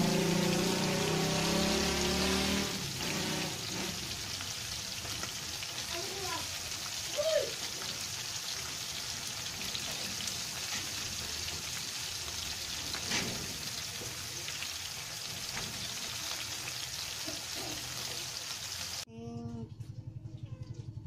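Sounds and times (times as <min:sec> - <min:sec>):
fish frying in hot oil: 0:00.0 - 0:19.1.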